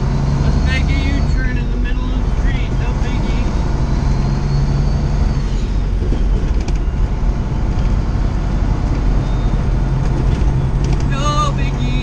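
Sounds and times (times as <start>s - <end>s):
diesel truck engine rumble: 0.0s - 12.0s.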